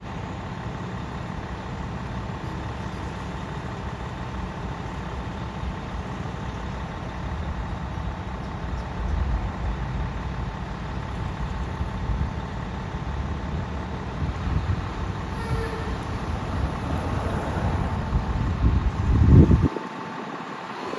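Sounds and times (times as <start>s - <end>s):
fire truck engine running: 0.0s - 20.9s
road noise: 0.0s - 20.9s.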